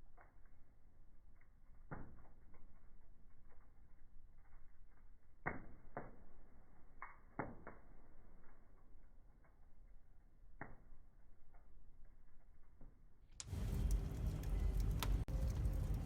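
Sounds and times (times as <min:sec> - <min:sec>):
wood fire crackling: 0:00.0 - 0:16.0
sharp pops of fire: 0:01.7 - 0:03.8, 0:05.4 - 0:08.9, 0:13.4 - 0:16.0.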